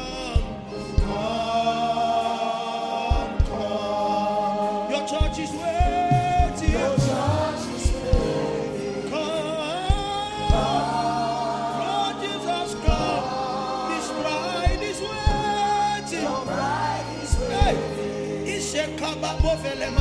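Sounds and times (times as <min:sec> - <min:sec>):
band playing: 0:00.0 - 0:20.0
voices singing held notes: 0:00.0 - 0:20.0
drum hits: 0:05.2 - 0:08.8.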